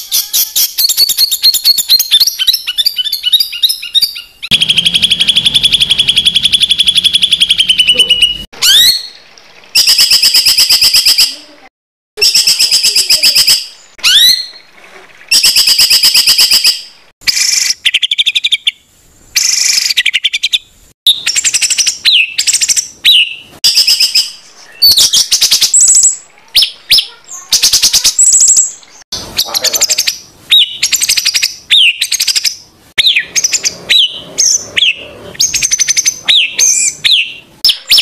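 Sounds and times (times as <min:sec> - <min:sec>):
bird song trills: 0:00.0 - 0:09.1, 0:19.4 - 0:38.0
upward-sweeping bird whistles: 0:00.1 - 0:09.1, 0:12.2 - 0:14.6, 0:30.5 - 0:38.0.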